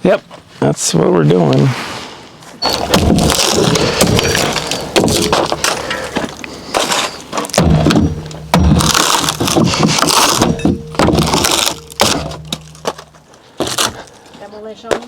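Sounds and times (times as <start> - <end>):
wood knocking and clattering: 2.7 - 14.0
wooden boards cracking: 2.7 - 14.2.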